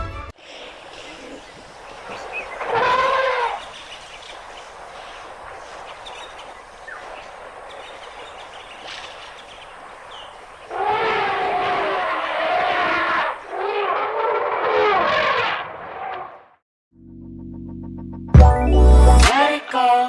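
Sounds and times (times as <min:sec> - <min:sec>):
faint bird calls: 0:00.4 - 0:13.8
elephant trumpeting: 0:02.1 - 0:03.7, 0:10.7 - 0:16.4.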